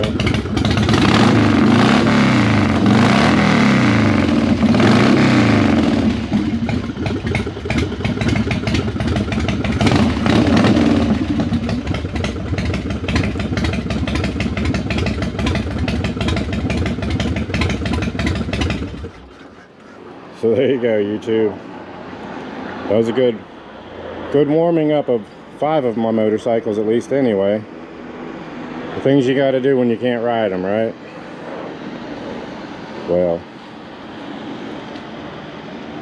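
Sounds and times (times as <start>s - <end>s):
motorcycle engine revving and idling: 0.0s - 19.4s.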